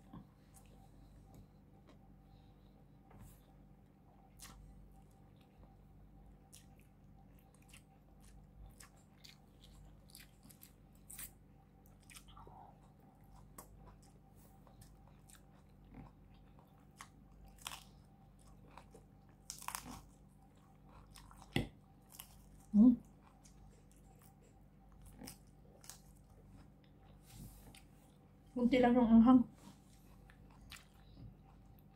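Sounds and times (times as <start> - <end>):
chewing food: 4.2 - 28.6, 29.6 - 31.9
crunchy bite into vegetable: 18.7 - 20.2.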